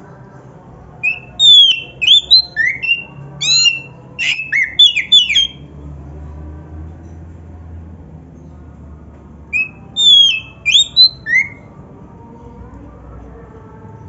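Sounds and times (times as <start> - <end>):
bird singing whistled notes: 1.0 - 5.7, 9.5 - 11.6.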